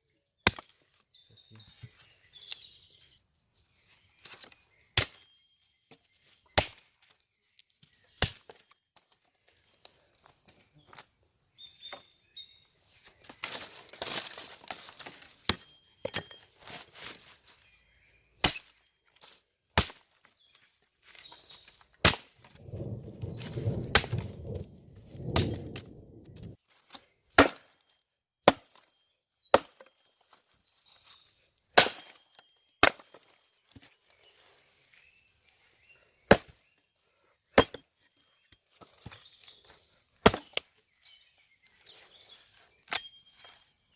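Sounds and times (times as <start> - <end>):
axe chopping wood: 5.0 - 5.2, 6.6 - 6.9, 8.2 - 8.6, 15.4 - 16.3, 18.4 - 18.7, 19.8 - 20.0, 22.0 - 22.4, 27.4 - 27.8, 28.4 - 28.8, 29.5 - 29.8, 31.7 - 33.2, 36.3 - 36.6, 37.6 - 37.8, 40.2 - 40.7
rustling or scraping: 16.4 - 17.7, 22.4 - 26.8
low rumbling: 22.6 - 26.6.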